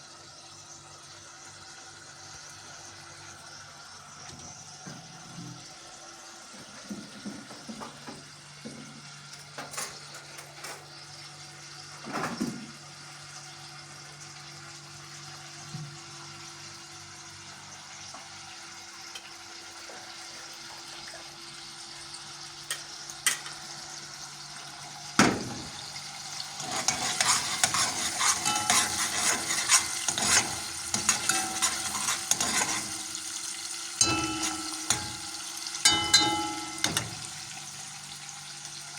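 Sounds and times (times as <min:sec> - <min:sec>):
food frying in a pan: 0:00.0 - 0:38.9
utensil clinking: 0:34.0 - 0:37.4.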